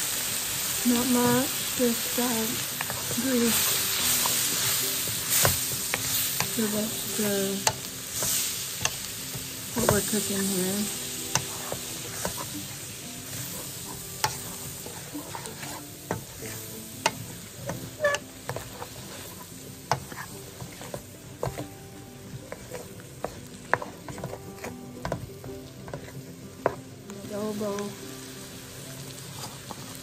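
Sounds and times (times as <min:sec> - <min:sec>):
vegetables sizzling in butter: 0:00.0 - 0:30.0
utensil stirring and scraping pan: 0:00.8 - 0:27.5, 0:29.2 - 0:30.0.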